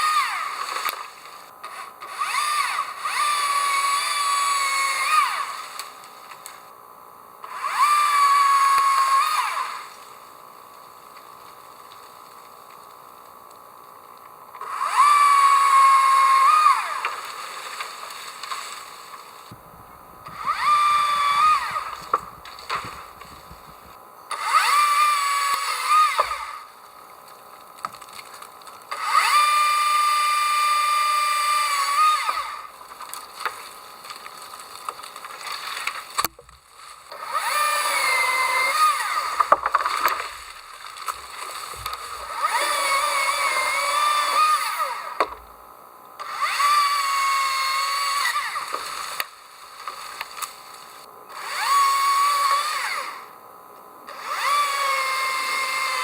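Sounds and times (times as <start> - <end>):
small motor running in bursts: 0.0 - 11.4, 12.1 - 26.8, 28.8 - 32.8, 37.0 - 45.4, 46.2 - 49.4, 50.1 - 53.4, 54.1 - 56.0.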